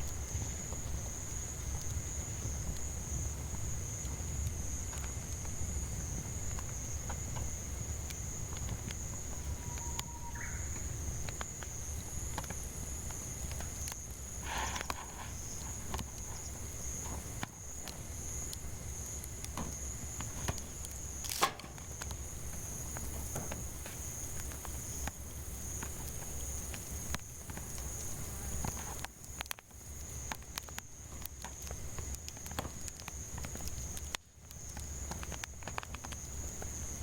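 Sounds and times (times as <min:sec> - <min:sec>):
campfire crackling and popping: 0:00.0 - 0:37.0
cicadas droning: 0:00.0 - 0:37.0
bird call: 0:09.6 - 0:10.9
sharp crack of firewood: 0:13.2 - 0:25.2.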